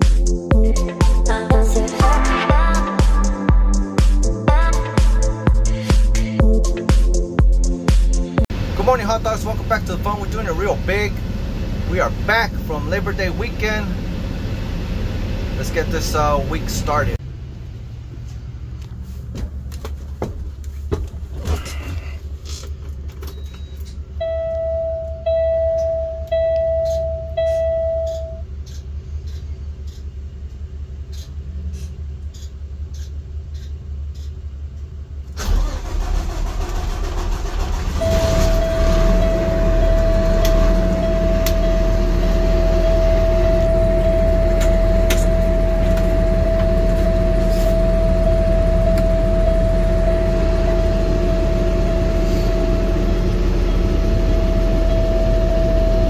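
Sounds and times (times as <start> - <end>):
diesel engine cranking and running: 8.4 - 56.0
dashboard warning beeps: 23.2 - 30.0, 37.9 - 56.0
warning buzzer: 38.0 - 53.1.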